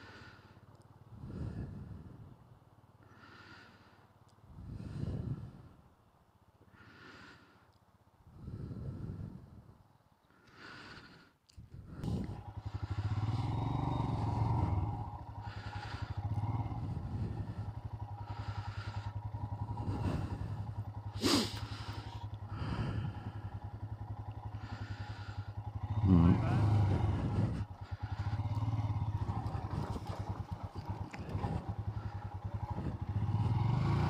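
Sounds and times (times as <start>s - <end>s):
motorcycle engine idling: 0.0s - 6.4s, 11.6s - 34.0s
hiss: 21.2s - 21.9s.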